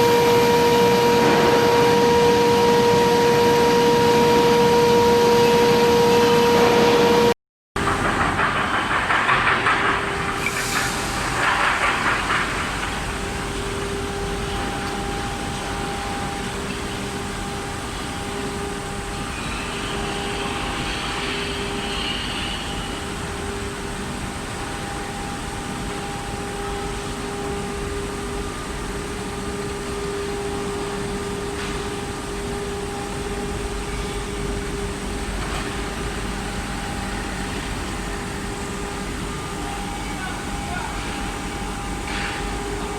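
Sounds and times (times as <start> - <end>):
furnace hum with pitched tone: 0.0 - 42.9.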